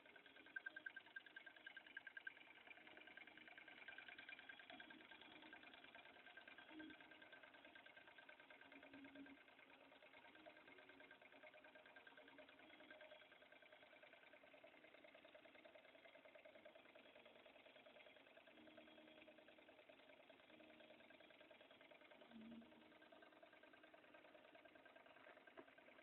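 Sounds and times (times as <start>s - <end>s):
small engine mechanical patter: 0.0s - 26.0s.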